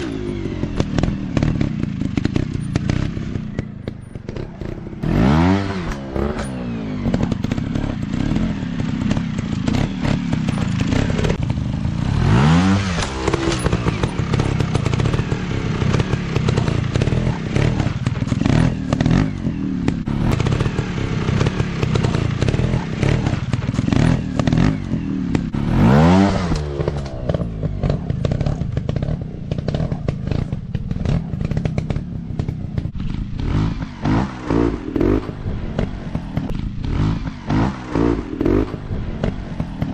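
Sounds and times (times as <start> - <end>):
rattle and clatter: 0.0 - 5.1, 5.8 - 12.1, 12.8 - 25.6, 26.4 - 39.9
dirt bike engine revving: 0.0 - 39.9.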